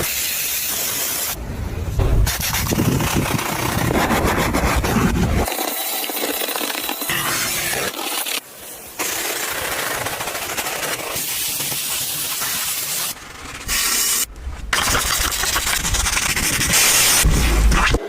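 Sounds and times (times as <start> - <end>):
high-pressure spray hissing: 0.0 - 1.4, 5.5 - 14.3.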